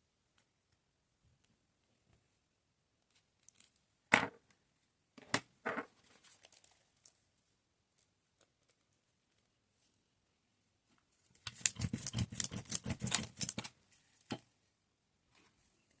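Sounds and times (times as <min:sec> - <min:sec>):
crinkly plastic snaps: 0:03.0 - 0:03.8.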